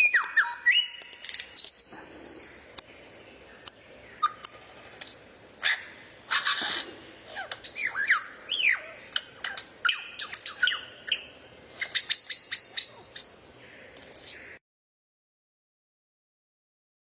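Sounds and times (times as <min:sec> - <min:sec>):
songbird chirping and whistling: 0:00.0 - 0:13.4.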